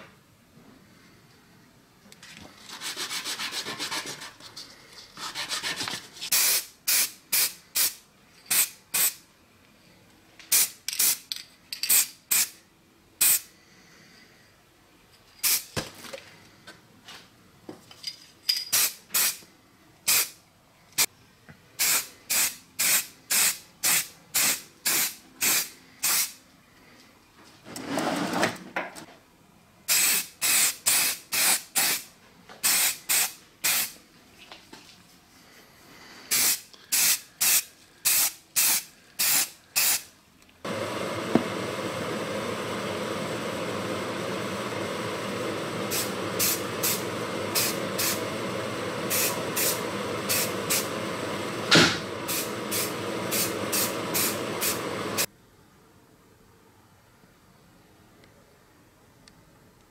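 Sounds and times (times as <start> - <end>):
spray can hissing bursts: 6.3 - 9.2, 10.5 - 11.2, 11.9 - 12.6, 13.2 - 13.5, 15.4 - 15.7, 18.8 - 19.4, 20.1 - 20.4, 21.8 - 26.4, 29.9 - 34.0, 36.3 - 40.1, 45.9 - 48.2, 49.1 - 50.9, 52.3 - 55.3.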